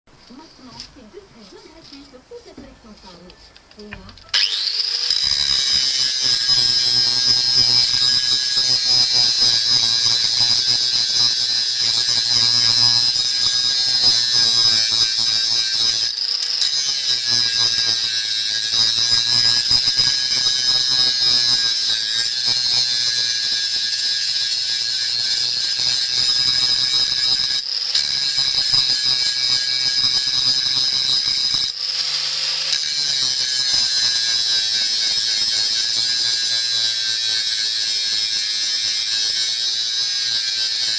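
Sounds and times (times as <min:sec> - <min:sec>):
power tool whining on steel: 0:00.3 - 0:40.9.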